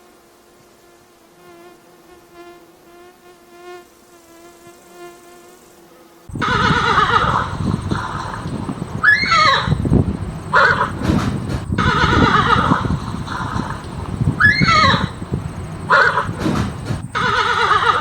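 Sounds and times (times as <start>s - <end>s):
horse whinnying: 6.4s - 7.5s, 9.0s - 9.8s, 11.8s - 13.8s, 14.4s - 15.2s, 17.1s - 18.0s.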